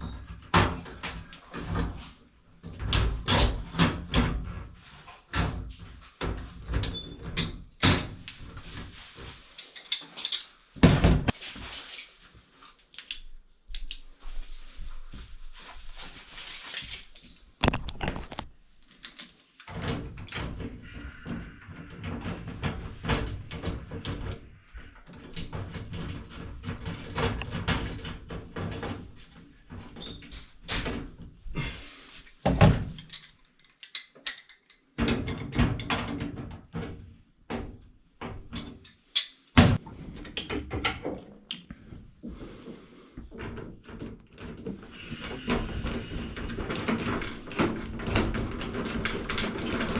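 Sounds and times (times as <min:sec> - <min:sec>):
knocks clunks and rattles: 0:10.8 - 0:11.4, 0:19.7 - 0:31.4, 0:43.2 - 0:49.9.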